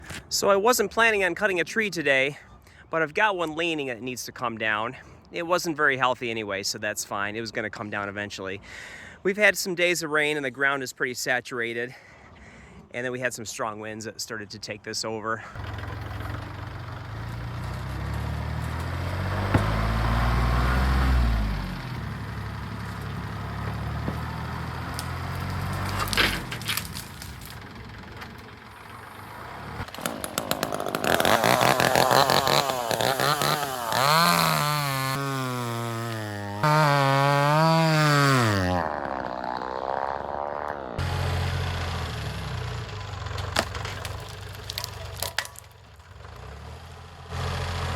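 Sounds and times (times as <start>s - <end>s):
tractor diesel engine revving: 15.6s - 45.3s, 46.0s - 47.9s
sharp cracks: 24.2s - 28.5s, 29.8s - 40.8s, 43.0s - 46.1s.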